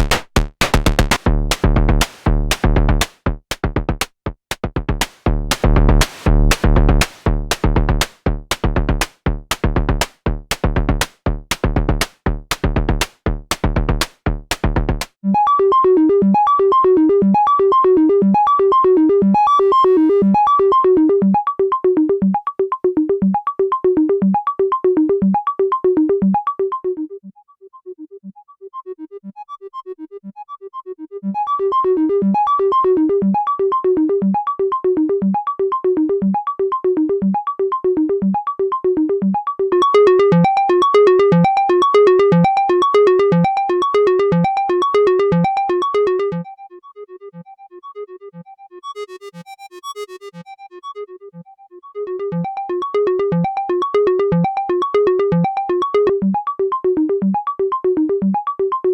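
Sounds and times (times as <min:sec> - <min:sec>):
drum synthesizer percussive blips: 0:00.0 - 0:15.2, 0:39.2 - 0:46.6, 0:52.2 - 0:56.5.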